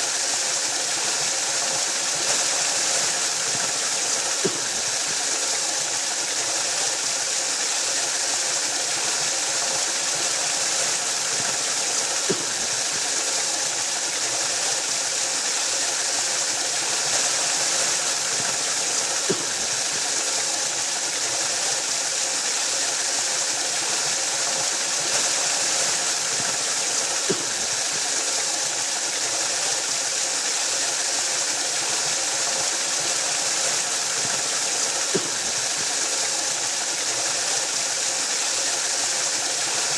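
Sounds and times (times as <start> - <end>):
waterfall roaring: 31.7 - 39.9.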